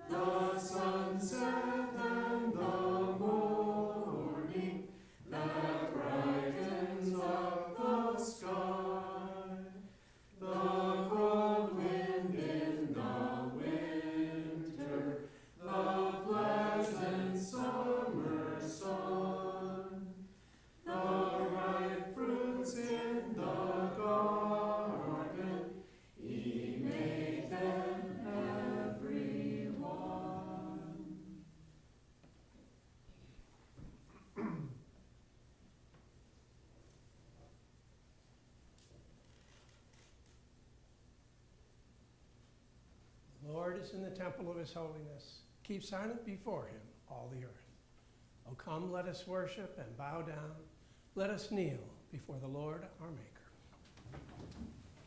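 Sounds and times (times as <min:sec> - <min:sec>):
congregation singing a hymn: 0:00.0 - 0:31.8.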